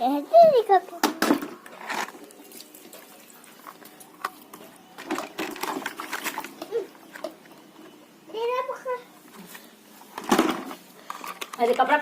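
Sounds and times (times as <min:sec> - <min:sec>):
plastic toys clicking and rattling: 0:03.6 - 0:07.4, 0:10.1 - 0:12.0.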